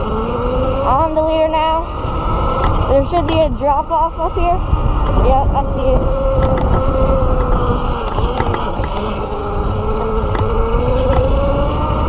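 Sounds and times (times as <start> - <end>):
electric bike motor whining: 0.0 - 12.0
wind rumble on microphone: 0.0 - 12.0.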